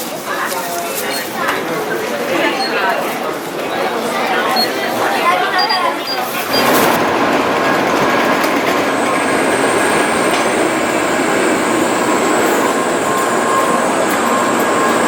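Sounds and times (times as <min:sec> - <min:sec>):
train passing at speed: 0:06.5 - 0:15.0
faint high whine: 0:09.1 - 0:15.0.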